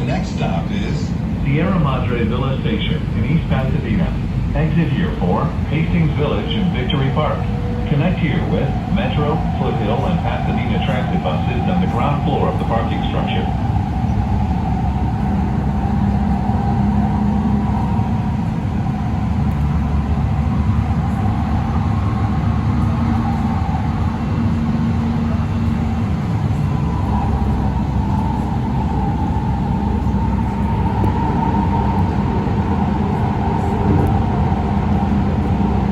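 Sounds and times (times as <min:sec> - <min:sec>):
train wheels rumbling on rails: 0:00.0 - 0:35.9
low motor hum: 0:05.7 - 0:35.9
high wavering whine: 0:25.2 - 0:35.9.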